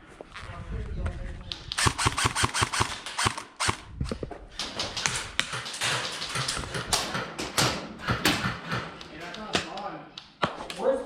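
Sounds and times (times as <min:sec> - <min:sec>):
airsoft guns firing: 0:01.8 - 0:04.0, 0:04.6 - 0:09.8.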